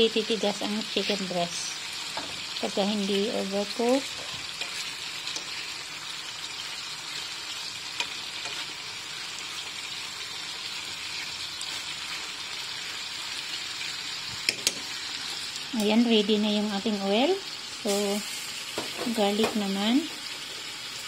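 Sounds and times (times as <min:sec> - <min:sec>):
chicken sizzling in frying pan: 0:00.0 - 0:21.0
wooden spatula turning food: 0:02.0 - 0:10.0.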